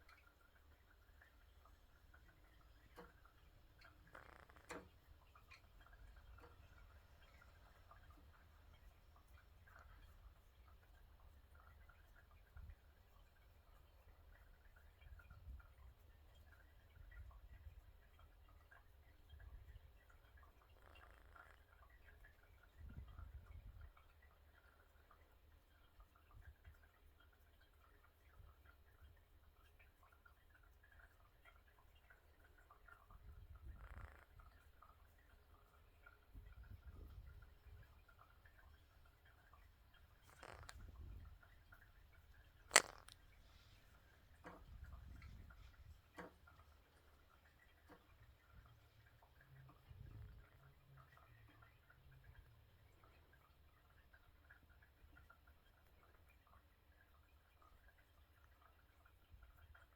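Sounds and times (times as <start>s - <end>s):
faint clicks: 0.0s - 59.9s
soft rustle: 33.5s - 50.1s.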